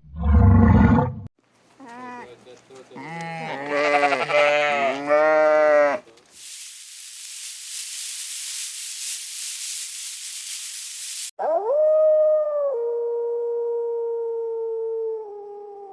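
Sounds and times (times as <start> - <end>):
sheep bleating: 1.8 - 6.1
steady hiss: 6.3 - 11.3
canine howl rising in pitch: 11.4 - 15.9.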